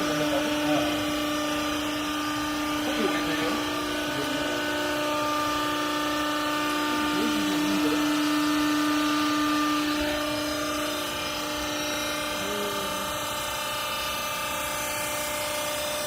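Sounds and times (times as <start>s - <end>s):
hydraulic motor and pump whining: 0.0s - 16.0s.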